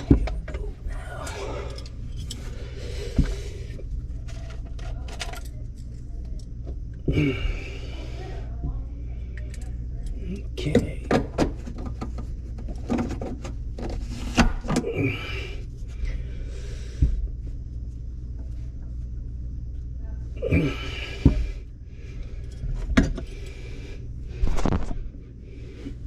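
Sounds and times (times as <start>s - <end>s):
steady low hum: 0.0s - 26.0s
tools and parts clicking: 4.3s - 6.5s.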